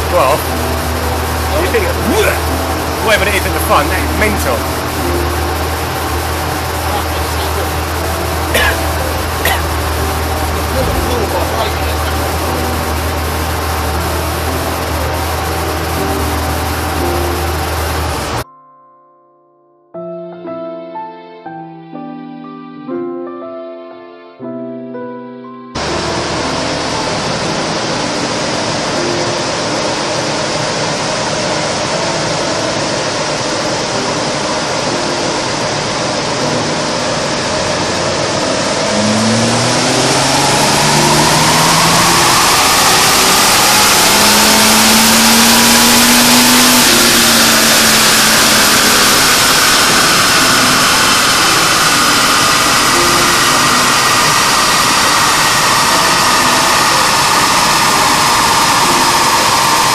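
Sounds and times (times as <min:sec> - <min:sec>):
car engine revving under load: 0:00.0 - 0:18.4, 0:25.8 - 0:59.9
roar of rollers and tyres: 0:25.8 - 0:59.9.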